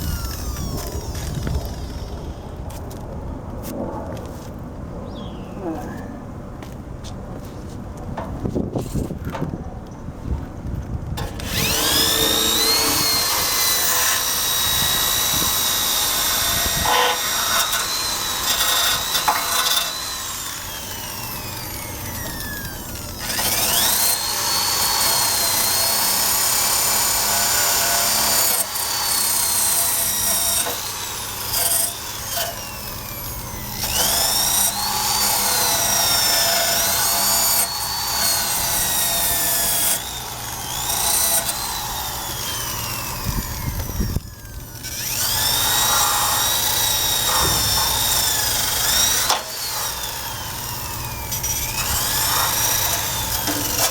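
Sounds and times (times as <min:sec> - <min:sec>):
drill wire brush scrubbing steel: 0:11.4 - 0:43.6, 0:44.6 - 0:53.9.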